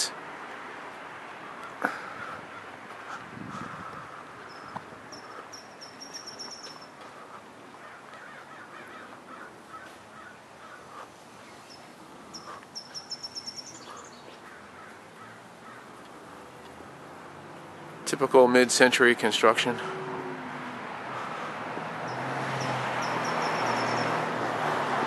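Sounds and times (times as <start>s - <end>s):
faint outdoor background noise: 0.0s - 25.0s
small birds chirping: 1.4s - 17.0s, 21.1s - 24.3s.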